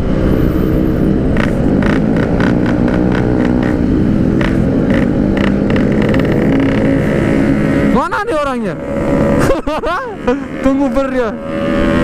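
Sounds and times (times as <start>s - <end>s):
wind rushing over microphone: 0.0s - 10.2s
motorcycle engine running: 0.0s - 12.0s.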